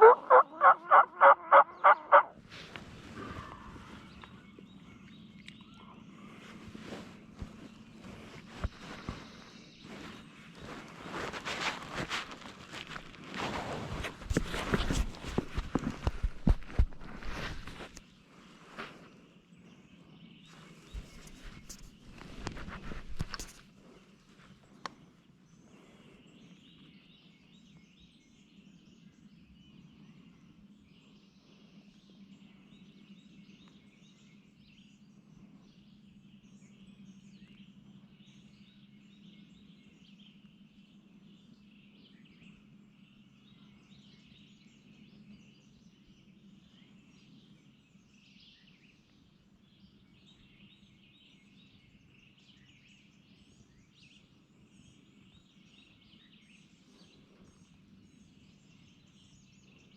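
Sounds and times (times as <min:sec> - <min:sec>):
distant birds chirping: 0:00.0 - 0:13.0.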